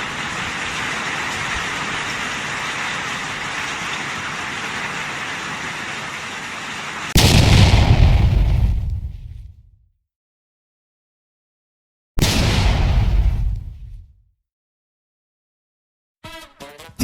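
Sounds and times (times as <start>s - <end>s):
hail hissing: 0.0s - 7.5s
loud boom: 7.1s - 9.6s, 12.2s - 13.9s.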